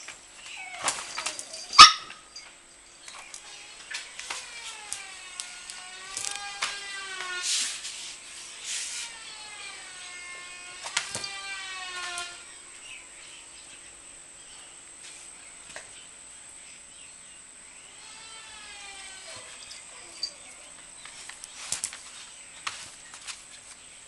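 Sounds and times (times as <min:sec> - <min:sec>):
puppy whining: 0:00.4 - 0:02.5, 0:18.7 - 0:20.8.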